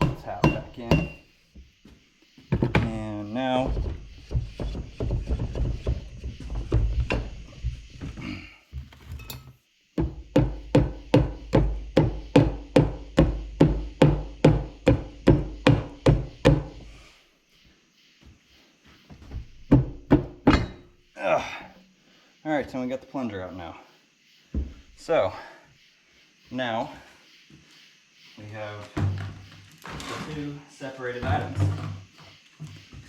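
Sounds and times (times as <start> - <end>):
hammer striking metal: 0.0 - 1.2.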